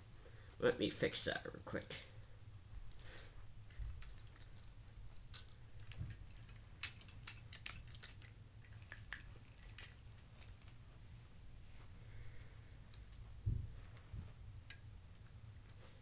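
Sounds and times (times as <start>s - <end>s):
low steady hum: 0.0s - 16.0s
clicks and taps of toy track: 3.8s - 10.8s.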